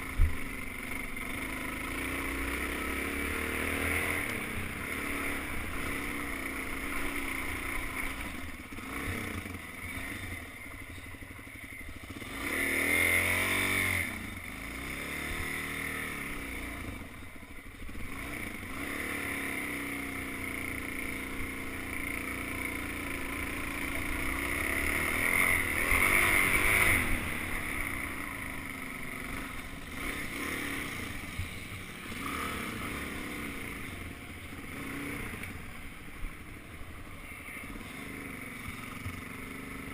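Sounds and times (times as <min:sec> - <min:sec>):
dirt bike engine revving: 0:00.0 - 0:11.0, 0:11.8 - 0:39.9.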